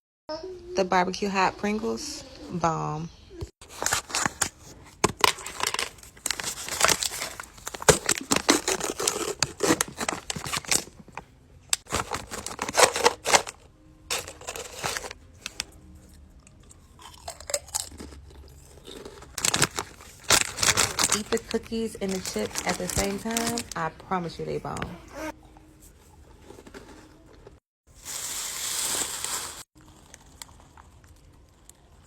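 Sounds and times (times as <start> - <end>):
crunching and chewing crisps: 5.2 - 11.1, 11.8 - 23.8, 25.4 - 32.0.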